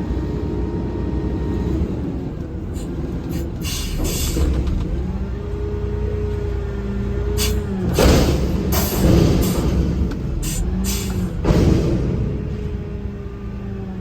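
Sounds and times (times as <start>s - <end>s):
truck diesel engine running: 0.0s - 14.0s
air hiss: 7.4s - 7.6s.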